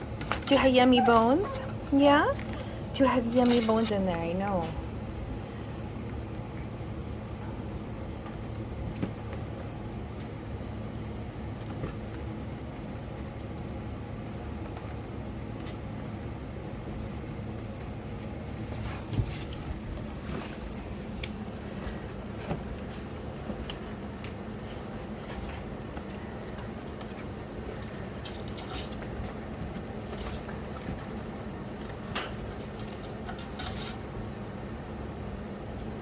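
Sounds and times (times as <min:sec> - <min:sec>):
steady low hum: 0:00.0 - 0:36.0
puppies chewing bones: 0:11.1 - 0:34.2.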